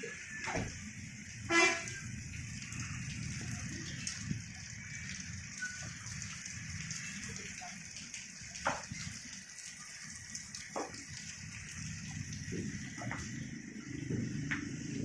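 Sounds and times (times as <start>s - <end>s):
vehicle horn toot: 1.5s - 2.0s.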